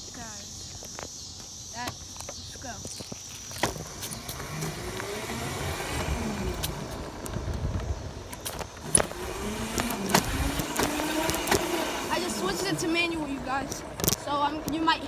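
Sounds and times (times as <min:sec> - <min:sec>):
dirt bike engine riding: 0:00.0 - 0:15.0
wind rumble on microphone: 0:03.8 - 0:12.5.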